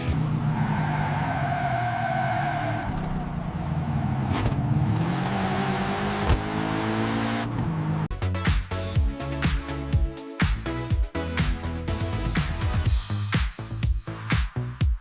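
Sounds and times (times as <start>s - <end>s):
car engine revving: 0.1s - 8.1s.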